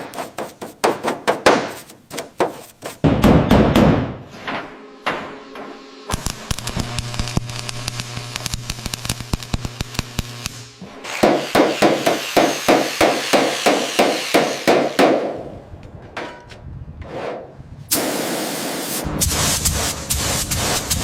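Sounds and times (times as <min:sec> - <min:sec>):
steady hum: 0:04.1 - 0:15.8.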